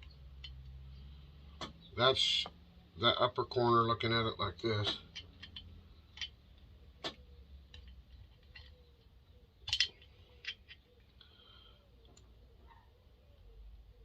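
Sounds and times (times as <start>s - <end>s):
small metal parts clicking: 0.0s - 0.8s, 4.8s - 11.2s.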